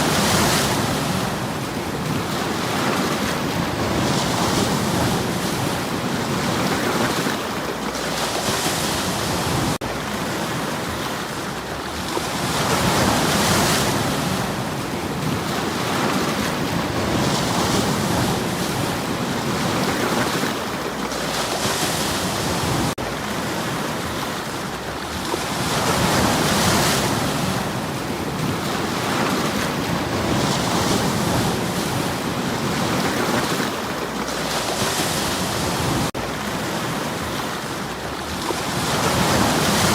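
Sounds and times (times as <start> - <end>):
waves washing against stones: 0.0 - 39.9.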